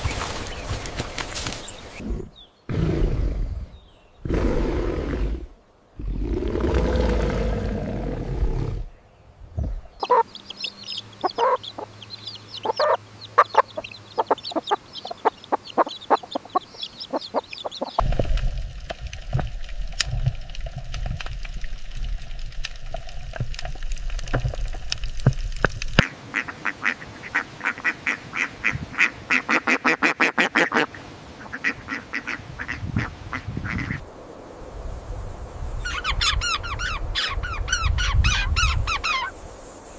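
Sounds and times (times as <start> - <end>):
ducks and poultry calling: 10.0 - 18.0, 26.0 - 34.0.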